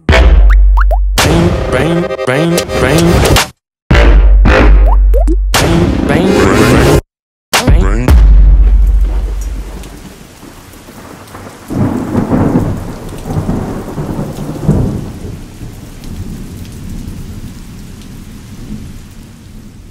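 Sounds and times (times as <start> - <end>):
thunder rumbling: 8.2 - 19.9
steady rain: 8.6 - 19.9.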